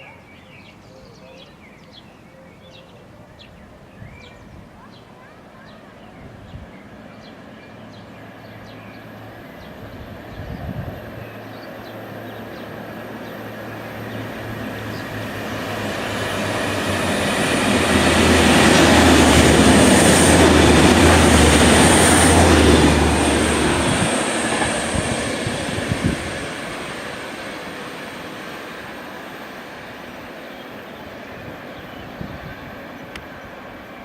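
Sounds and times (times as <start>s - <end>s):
train wheels on rails: 8.4s - 34.0s.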